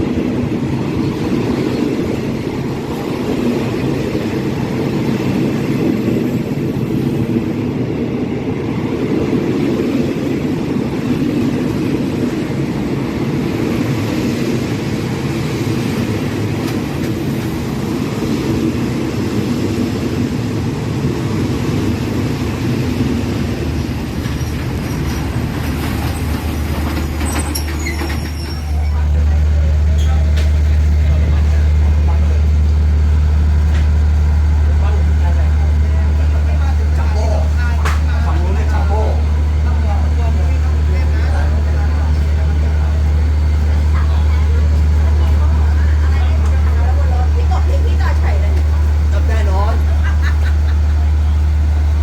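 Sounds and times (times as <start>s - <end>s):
train running on track: 0.0s - 52.0s
low hum: 28.4s - 52.0s.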